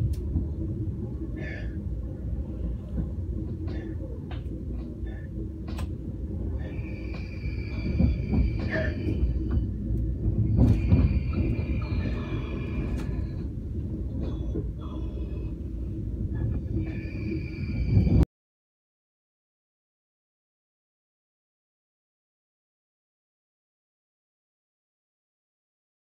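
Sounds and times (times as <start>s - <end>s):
train rumble inside carriage: 0.0s - 18.3s.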